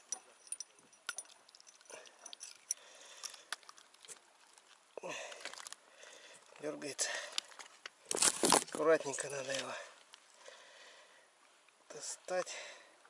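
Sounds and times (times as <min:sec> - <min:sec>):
fish handling clicks and rustles: 0:00.0 - 0:10.4.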